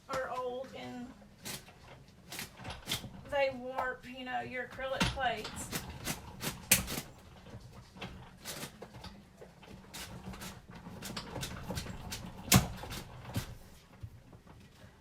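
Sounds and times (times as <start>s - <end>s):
die-cutting machine clicks and knocks: 4.8s - 13.6s.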